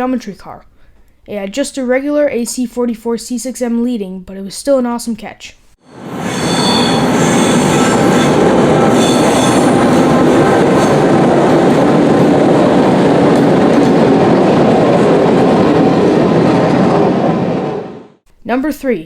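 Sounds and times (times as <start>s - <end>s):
train wheels rumbling on rail: 5.9s - 18.2s
faint high wheel squeal: 6.0s - 10.1s.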